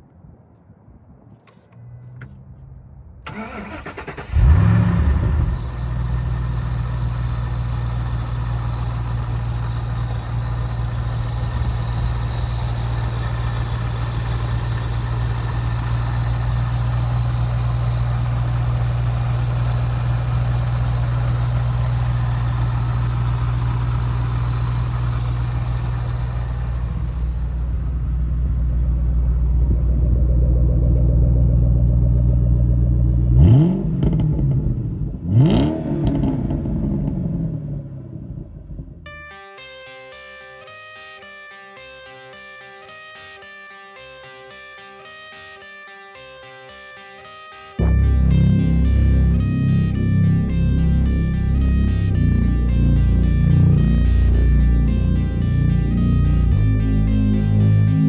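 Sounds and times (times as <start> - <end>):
car engine cranking and starting: 3.2 - 39.0
engine revving: 3.3 - 38.9
car engine idling: 3.3 - 39.1.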